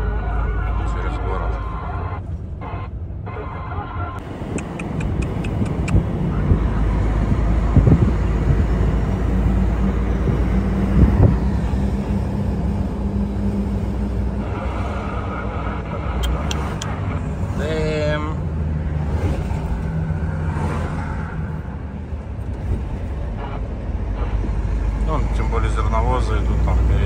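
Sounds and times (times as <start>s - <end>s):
truck engine running: 4.2s - 20.0s.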